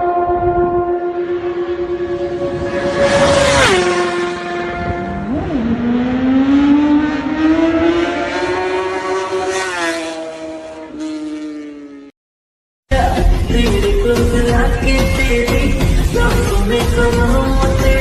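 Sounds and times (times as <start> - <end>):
motorbike engine at high revs: 0.0 - 12.1.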